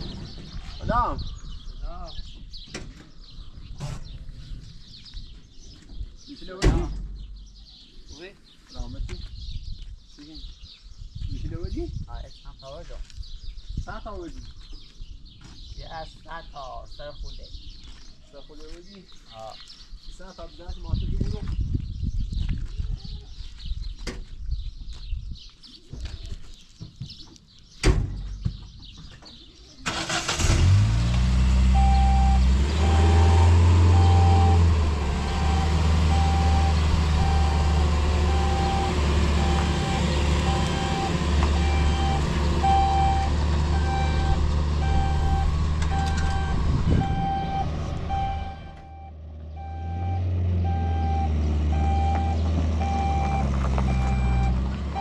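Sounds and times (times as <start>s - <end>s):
large vehicle engine running: 30.0s - 55.0s
reversing alarm beeping: 31.8s - 55.0s.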